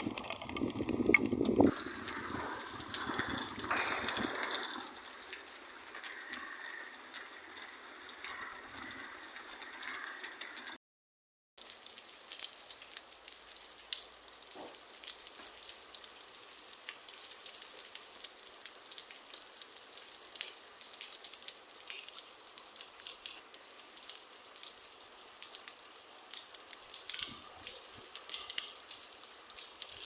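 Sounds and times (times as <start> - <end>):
rain falling: 0.0 - 10.8, 11.6 - 30.0
raindrops ticking on a surface: 0.0 - 10.8, 11.6 - 30.0.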